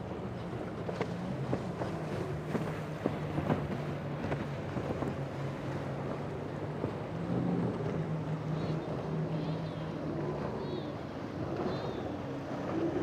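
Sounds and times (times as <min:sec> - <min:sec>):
boat engine humming: 0:00.0 - 0:13.0
water noise: 0:00.0 - 0:13.0.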